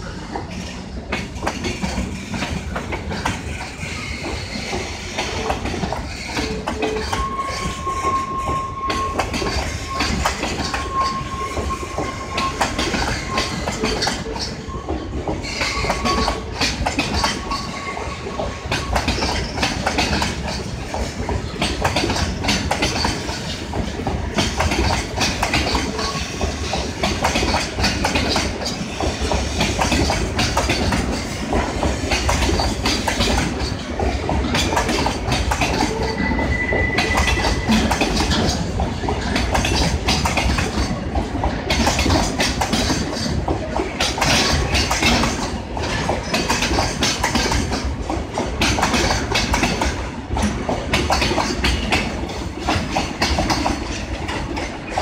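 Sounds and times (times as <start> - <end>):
low train rumble: 0.0 - 55.0
wheels clattering over rail joints: 0.2 - 55.0
high wheel squeals: 6.2 - 16.5, 35.7 - 38.5.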